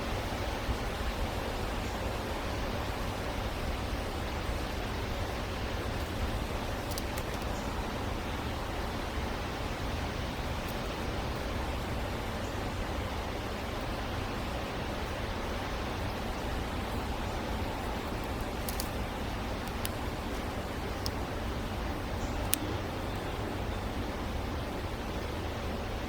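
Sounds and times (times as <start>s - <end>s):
rushing background noise: 0.0s - 26.0s
faint high ticks: 6.0s - 8.0s, 18.1s - 21.3s, 22.2s - 22.8s.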